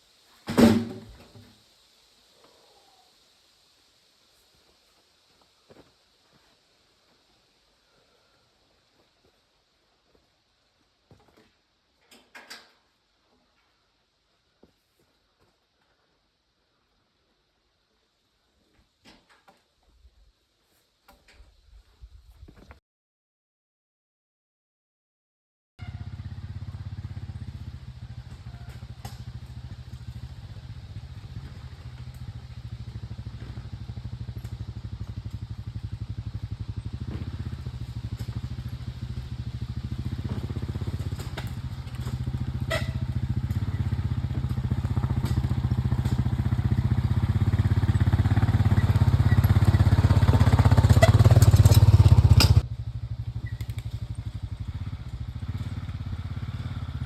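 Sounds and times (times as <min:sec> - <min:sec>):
small engine running: 0:25.8 - 0:57.0.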